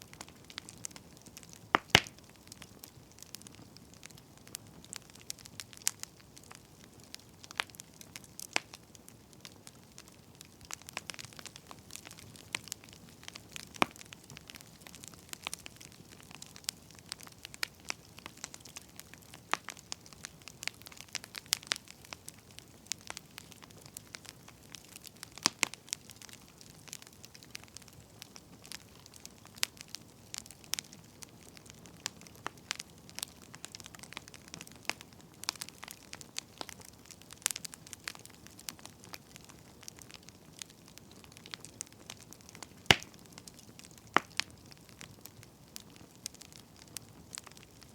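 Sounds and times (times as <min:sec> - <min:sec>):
soft steady hiss: 0:00.0 - 0:47.9
wood fire crackling and popping: 0:00.0 - 0:47.9.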